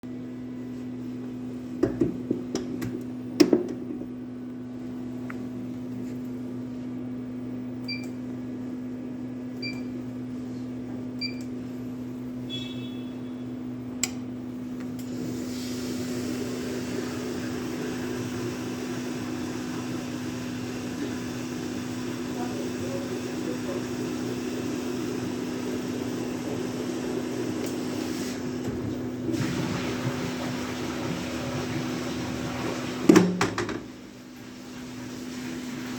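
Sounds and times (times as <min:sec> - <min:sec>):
electrical hum: 0:00.0 - 0:35.9
washing machine clicks and knocks: 0:01.8 - 0:04.0, 0:33.1 - 0:33.9
control panel beeps: 0:07.8 - 0:08.2, 0:09.6 - 0:09.9, 0:11.2 - 0:11.5.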